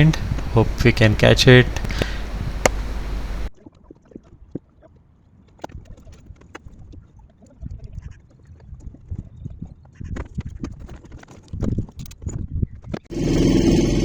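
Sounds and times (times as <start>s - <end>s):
wind buffeting microphone: 0.0s - 3.5s.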